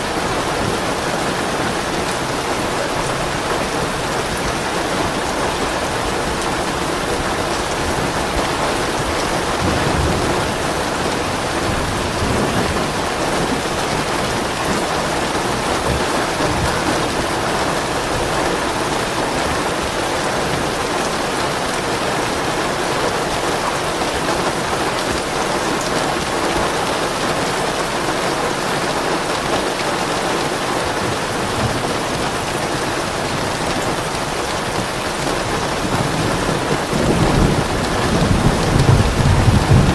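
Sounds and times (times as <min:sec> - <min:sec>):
thunder rumbling: 0:00.0 - 0:18.4, 0:33.2 - 0:39.9
heavy rain falling: 0:00.0 - 0:39.9.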